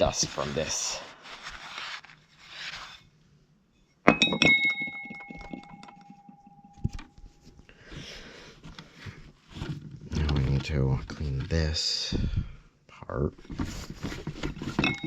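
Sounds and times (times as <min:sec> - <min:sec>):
cloth rubbing on bell: 0:00.0 - 0:03.1, 0:04.8 - 0:07.6, 0:13.7 - 0:15.0
metal bell dome ringing: 0:04.1 - 0:07.1.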